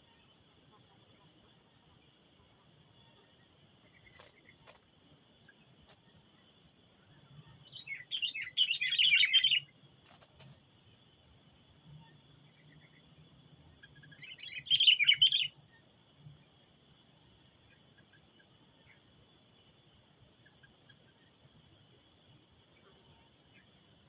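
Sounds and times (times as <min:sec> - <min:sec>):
high insect drone: 0:00.0 - 0:24.0
bird chattering calls: 0:07.8 - 0:09.6.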